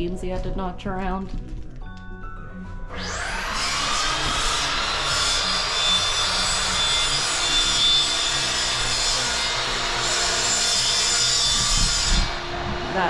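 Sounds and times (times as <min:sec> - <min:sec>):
power tool sanding wood: 0:02.9 - 0:13.0.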